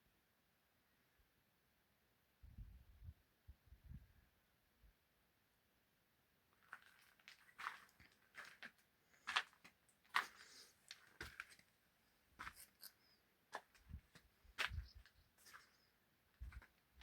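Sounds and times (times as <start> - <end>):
footsteps crunching on gravel: 6.7 - 11.6, 12.4 - 12.9, 13.6 - 15.8, 16.4 - 16.7.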